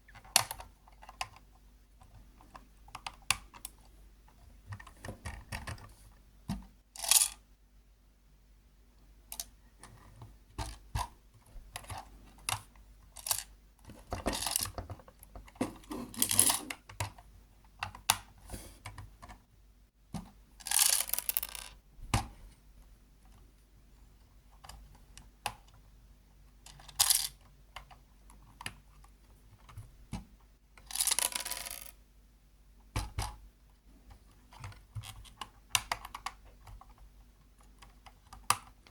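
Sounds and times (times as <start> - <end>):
plastic bricks clicking and rattling: 13.2 - 17.2, 20.6 - 21.8, 26.6 - 27.9, 30.8 - 32.0.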